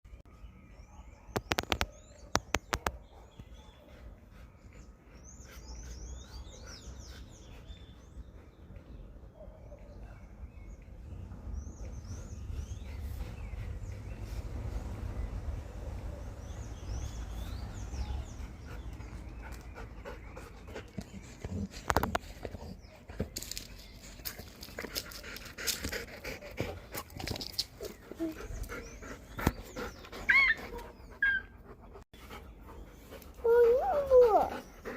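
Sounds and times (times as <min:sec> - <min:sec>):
dog panting: 0:03.1 - 0:09.8, 0:11.6 - 0:15.3, 0:16.1 - 0:23.2, 0:23.9 - 0:34.9
dog high-pitched calls: 0:30.3 - 0:31.5.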